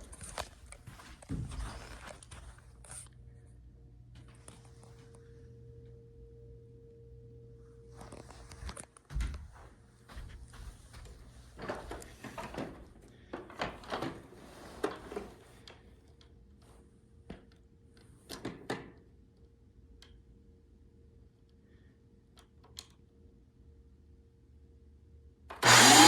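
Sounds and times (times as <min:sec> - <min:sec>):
faint steady hum: 0:00.0 - 0:11.4.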